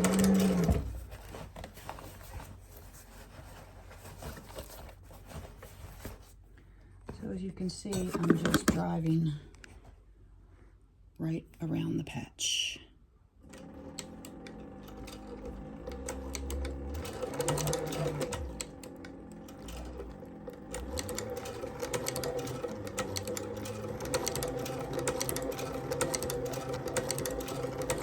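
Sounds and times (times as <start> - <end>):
sewing machine motor humming: 0.0 - 1.1, 13.4 - 28.0.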